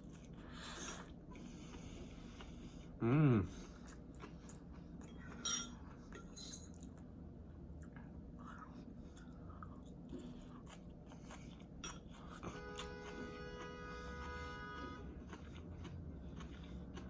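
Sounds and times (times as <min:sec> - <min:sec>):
person chewing noodles: 0:00.0 - 0:17.0.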